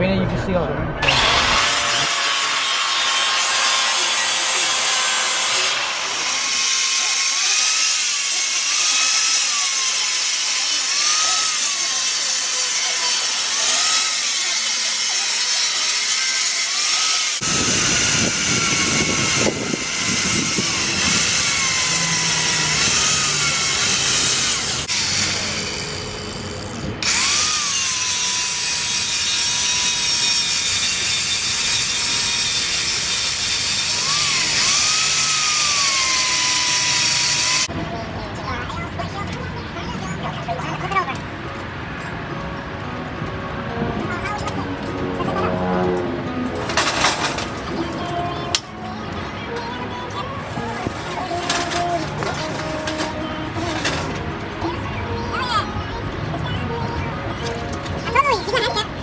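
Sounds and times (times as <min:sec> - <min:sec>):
angle grinder grinding metal: 0:01.0 - 0:37.7.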